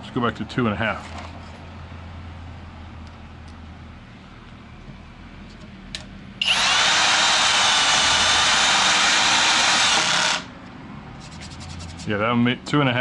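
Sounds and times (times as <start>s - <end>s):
cordless drill driving screw: 6.4s - 10.6s.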